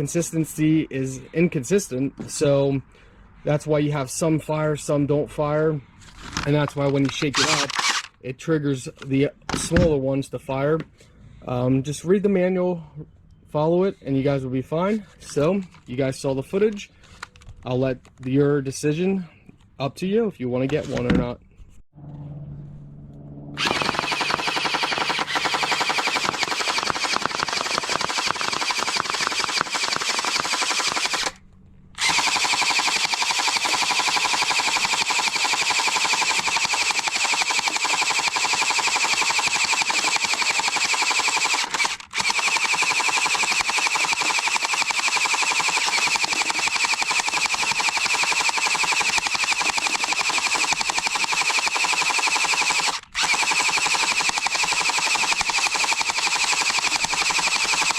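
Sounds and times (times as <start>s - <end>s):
toy blaster rapid-fire shots: 7.2s - 8.1s, 23.6s - 31.4s, 32.0s - 57.9s
blaster motor whine: 22.0s - 31.3s.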